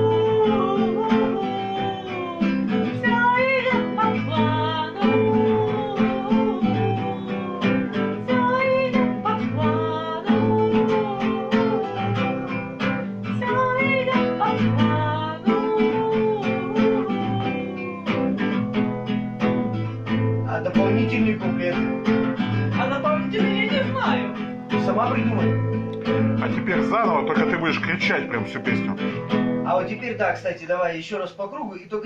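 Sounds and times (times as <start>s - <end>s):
woman singing: 0.0s - 18.6s, 22.5s - 24.6s
strummed acoustic guitar: 0.0s - 30.4s.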